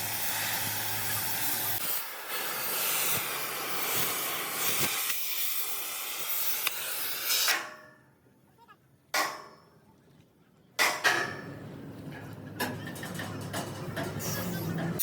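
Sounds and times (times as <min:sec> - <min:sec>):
dense hissing noise: 0:00.0 - 0:07.6.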